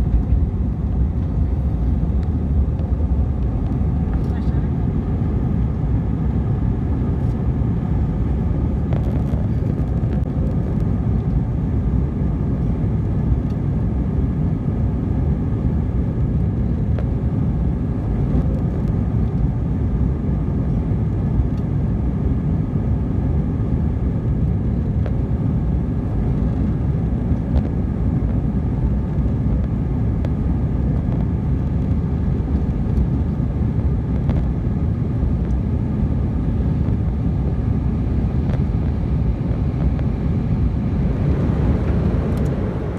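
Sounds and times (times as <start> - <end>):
airliner cabin engine roar: 0.0 - 42.9
faint steady whine: 24.0 - 42.9.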